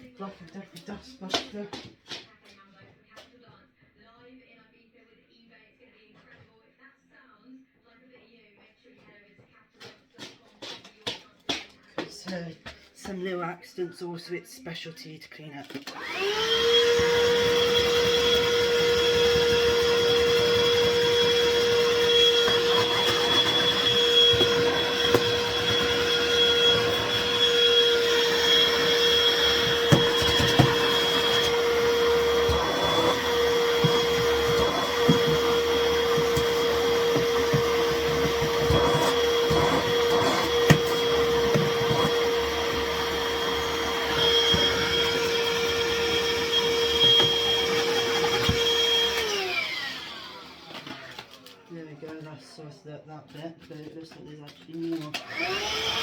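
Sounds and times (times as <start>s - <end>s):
handheld vacuum whine: 15.8s - 51.6s, 55.0s - 56.0s.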